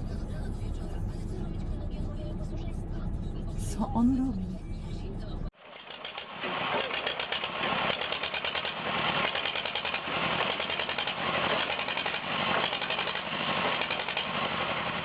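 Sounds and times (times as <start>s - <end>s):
vehicle engine fluttering: 4.5s - 15.0s.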